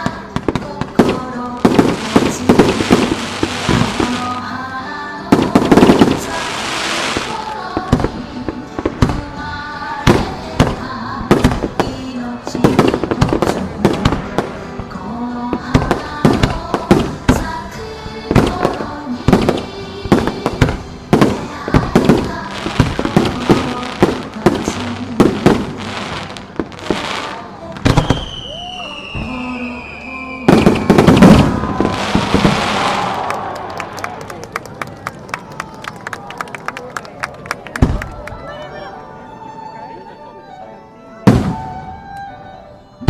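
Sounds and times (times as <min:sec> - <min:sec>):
fireworks bangs: 0:00.0 - 0:04.4, 0:18.3 - 0:33.7
music playing: 0:00.0 - 0:43.0.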